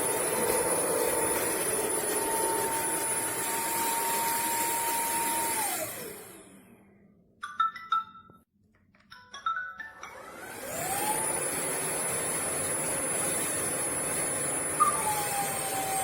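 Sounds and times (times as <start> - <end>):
floor cleaner motor whining: 0.0 - 6.8, 10.1 - 16.0.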